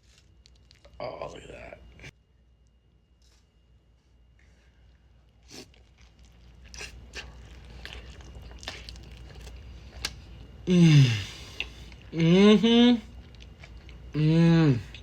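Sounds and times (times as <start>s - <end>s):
close chewing with wet crunches: 0.0s - 1.0s, 4.8s - 10.6s, 13.1s - 14.2s.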